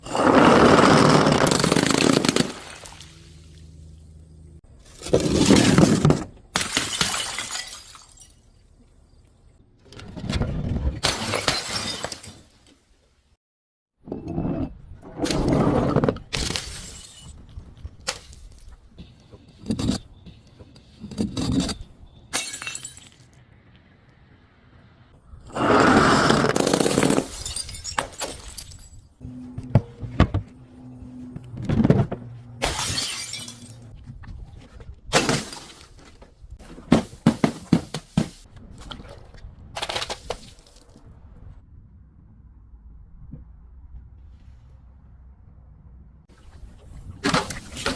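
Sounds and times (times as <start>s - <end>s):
glass smashing: 6.6s - 8.5s, 11.0s - 12.5s, 16.4s - 17.5s, 22.3s - 23.3s, 26.6s - 29.1s, 32.6s - 33.9s.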